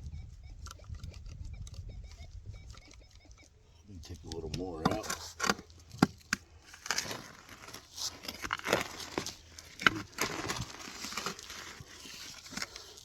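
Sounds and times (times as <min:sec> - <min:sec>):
digging tool scraping wet soil: 0:04.2 - 0:13.0.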